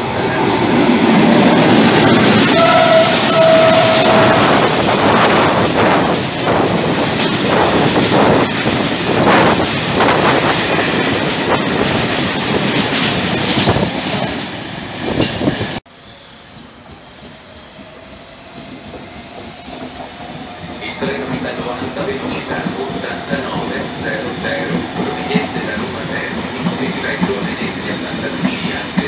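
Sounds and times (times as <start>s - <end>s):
distant electric train passing: 0.0s - 29.0s
freight train wheels clattering: 16.6s - 29.0s.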